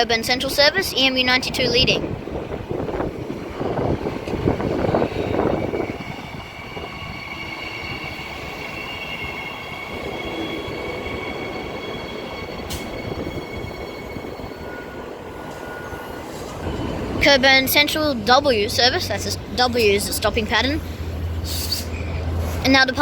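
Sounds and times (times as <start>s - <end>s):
train cars rumbling past: 0.0s - 23.0s
train brakes squealing: 4.8s - 17.2s, 21.0s - 22.8s.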